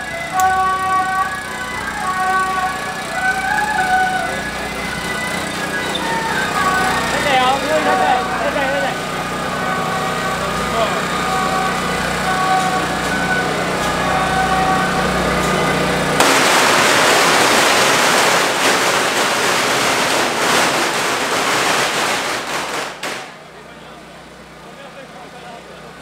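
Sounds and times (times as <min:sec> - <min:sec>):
steady hum with held tones: 0:00.0 - 0:18.4
firecrackers crackling: 0:00.3 - 0:23.6.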